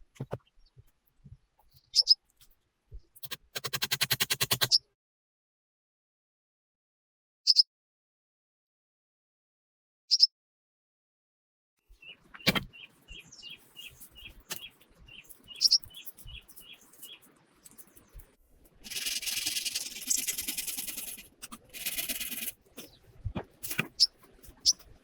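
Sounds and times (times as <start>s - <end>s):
bird chirping: 1.6s - 2.2s, 11.9s - 18.3s, 18.9s - 25.0s
loud scratchy rasp: 18.8s - 22.9s.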